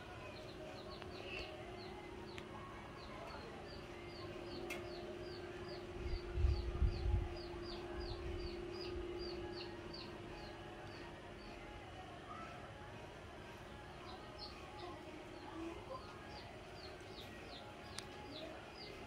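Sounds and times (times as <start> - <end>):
bird chirping: 0.0 - 11.6
steady low hum: 0.0 - 19.0.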